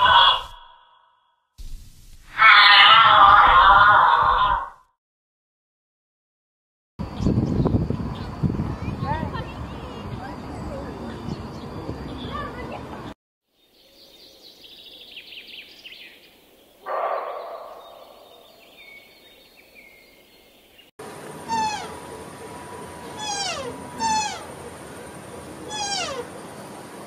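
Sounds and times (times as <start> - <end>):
deer rough loud call: 0.0 - 0.7
deer high falling calls: 21.4 - 22.1, 23.1 - 24.7, 25.6 - 26.4.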